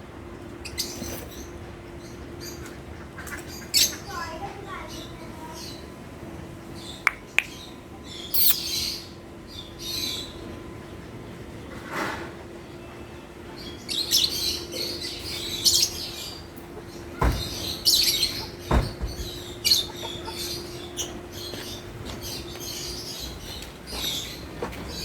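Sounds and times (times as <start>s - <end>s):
lovebirds chirping: 6.8s - 9.1s.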